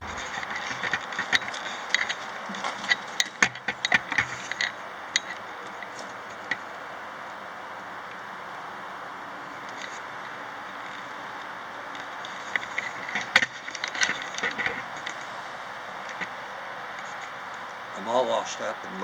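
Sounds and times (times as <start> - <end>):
sharp metallic clicks and clanks: 0.0 - 6.6, 12.3 - 15.3
steady hiss: 0.0 - 19.0.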